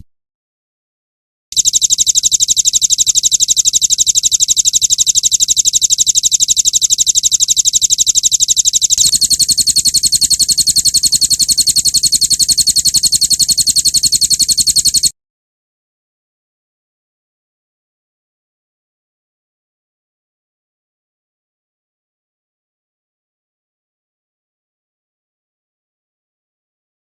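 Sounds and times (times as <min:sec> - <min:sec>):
songbird rattling trill: 0:01.6 - 0:15.1.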